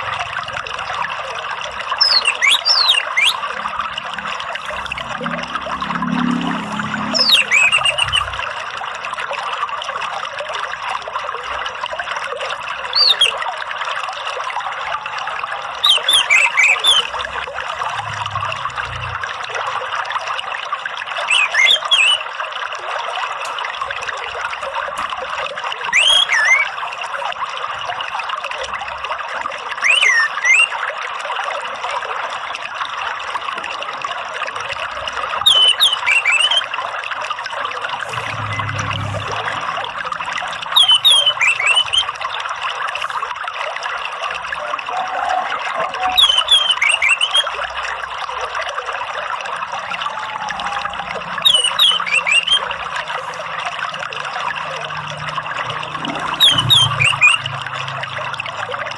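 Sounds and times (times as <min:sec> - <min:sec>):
trickle of running water: 0:00.0 - 0:58.9
thrush whistled calls: 0:01.8 - 0:08.6, 0:12.8 - 0:13.4, 0:15.7 - 0:19.2, 0:21.1 - 0:22.4, 0:25.8 - 0:27.3, 0:29.8 - 0:30.9, 0:35.4 - 0:36.9, 0:37.8 - 0:42.4, 0:44.9 - 0:47.6, 0:49.7 - 0:53.4, 0:55.9 - 0:57.6.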